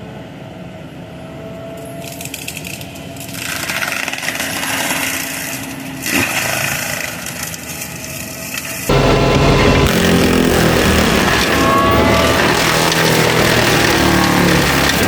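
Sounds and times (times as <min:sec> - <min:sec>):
mulcher crackling and grinding: 0:02.0 - 0:15.0
machine engine running: 0:08.9 - 0:15.0.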